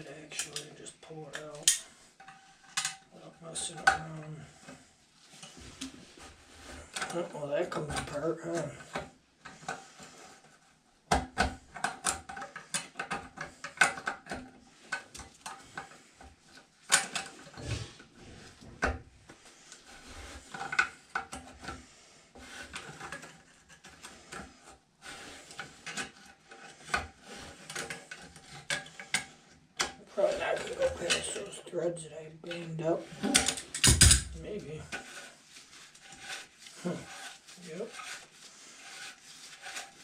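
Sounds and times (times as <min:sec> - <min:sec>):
metal scraping on metal: 0:30.0 - 0:40.0
metal clicks and knocks: 0:33.3 - 0:34.4.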